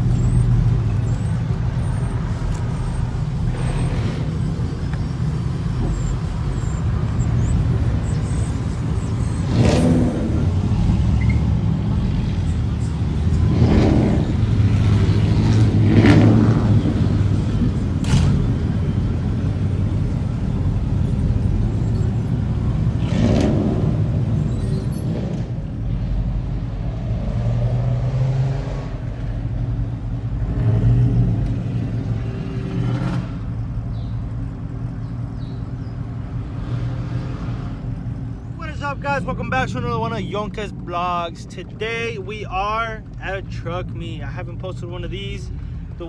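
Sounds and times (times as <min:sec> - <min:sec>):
vehicle engine rumbling: 0:00.0 - 0:46.0.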